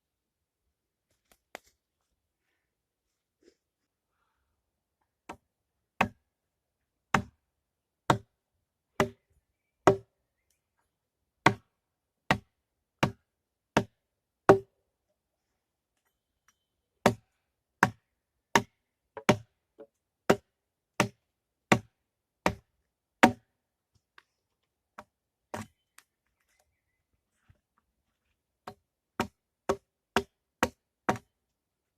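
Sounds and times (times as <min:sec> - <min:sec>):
hand tool striking wood: 0:07.1 - 0:07.4, 0:09.0 - 0:09.2, 0:09.8 - 0:10.1, 0:12.3 - 0:13.2, 0:13.8 - 0:14.7, 0:17.8 - 0:23.5, 0:28.6 - 0:31.3.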